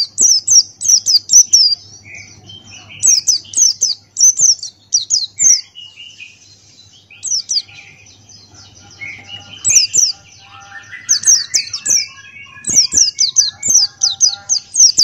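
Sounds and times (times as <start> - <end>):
bird singing fast high chirps: 0.0 - 15.0.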